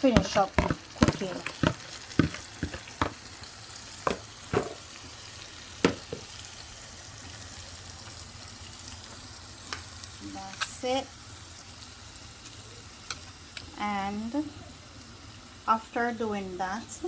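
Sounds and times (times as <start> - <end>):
meat sizzling in a pot: 0.0 - 17.0
utensil knocking against pot: 0.2 - 3.2, 4.1 - 4.9, 5.8 - 6.3.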